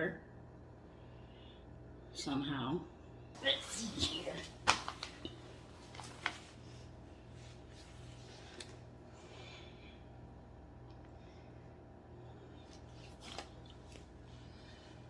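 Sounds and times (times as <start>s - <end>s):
steady low hum: 0.0s - 15.0s
soft rustle: 3.5s - 9.3s.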